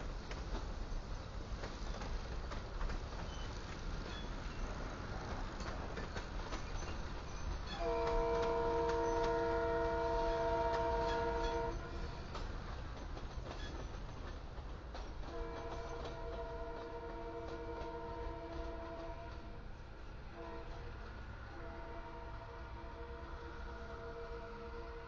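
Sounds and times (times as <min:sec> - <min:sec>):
train wheels clattering on rail: 0:00.0 - 0:22.0
locomotive air horn: 0:07.8 - 0:12.2, 0:15.3 - 0:19.5, 0:20.4 - 0:20.9, 0:21.5 - 0:25.0.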